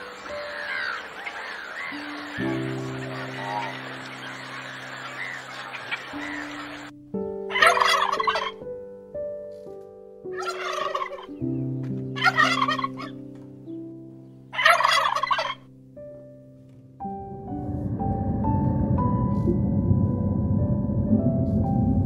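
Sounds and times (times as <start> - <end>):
rough bird calls: 0.0 - 6.9
gentle piano music: 0.0 - 22.0.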